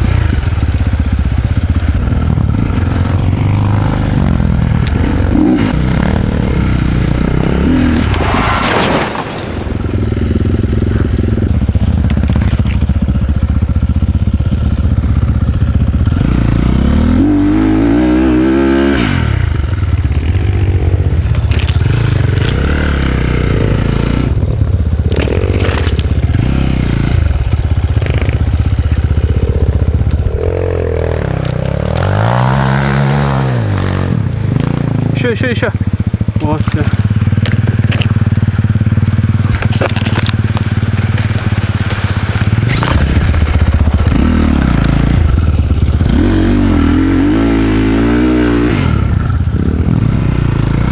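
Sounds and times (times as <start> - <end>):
dirt bike engine revving: 0.0 - 50.9
clattering and scraping: 7.6 - 10.3, 39.0 - 44.9.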